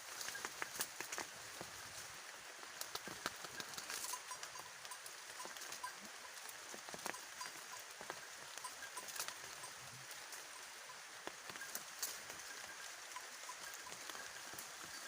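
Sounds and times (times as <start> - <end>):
foliage rustling and crackling: 0.0 - 15.0.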